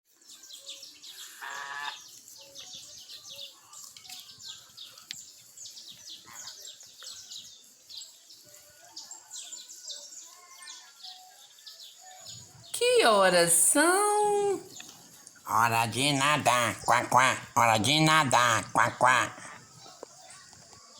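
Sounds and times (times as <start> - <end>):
birds chirping: 12.3 - 20.7
lower bird call: 15.5 - 19.7.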